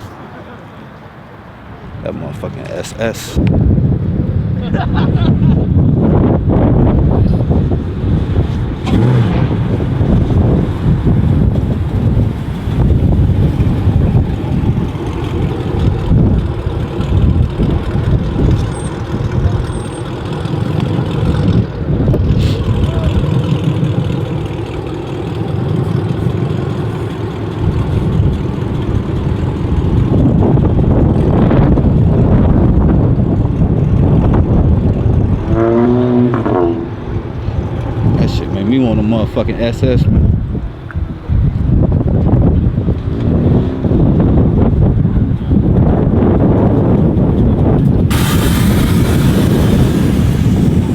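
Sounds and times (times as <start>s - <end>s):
car engine rumbling: 0.0s - 50.9s
traffic noise: 0.0s - 50.9s
person speaking: 2.0s - 3.4s.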